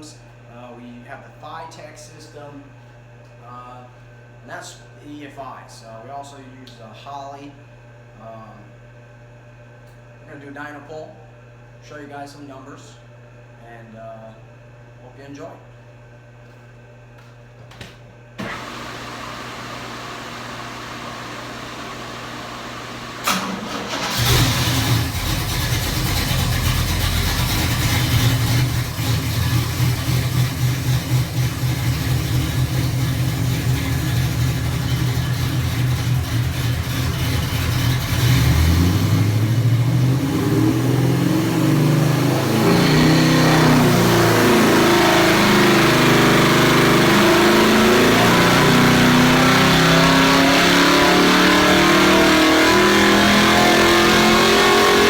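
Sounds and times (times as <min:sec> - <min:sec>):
engine idling and revving on dyno: 0:18.4 - 0:55.0.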